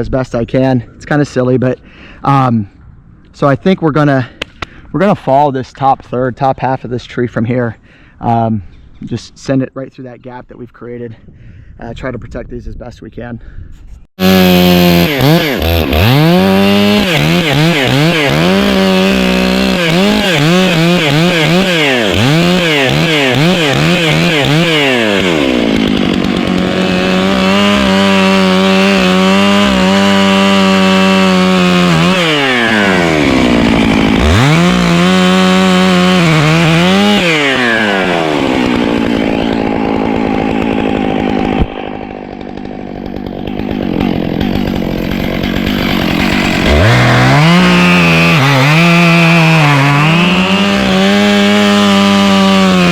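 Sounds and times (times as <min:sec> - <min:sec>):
chainsaw revving: 0:14.2 - 0:52.9.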